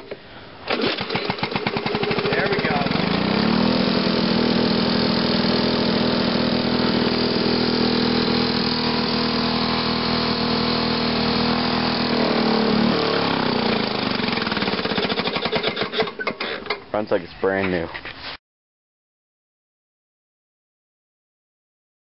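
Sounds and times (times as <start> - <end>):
lawn mower engine running: 0.6 - 16.9.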